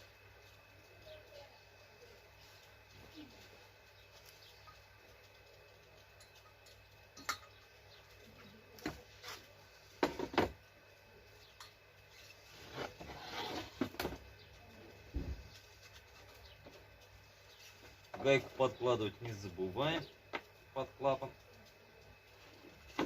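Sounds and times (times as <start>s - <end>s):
metal scraping: 12.1s - 14.2s.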